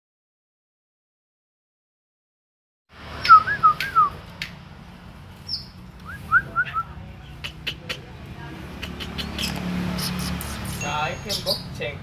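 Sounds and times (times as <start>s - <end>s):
high bird chirp: 5.4s - 7.8s, 8.8s - 11.8s
sharp clicks: 8.8s - 10.8s.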